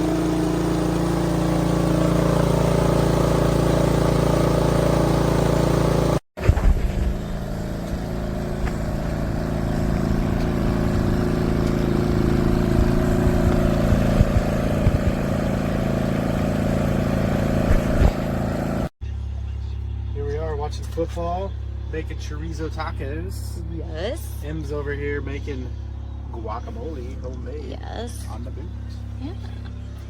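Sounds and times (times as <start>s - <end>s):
small generator engine running: 0.0s - 30.0s
low thumps on the microphone: 12.7s - 15.4s, 17.6s - 18.2s.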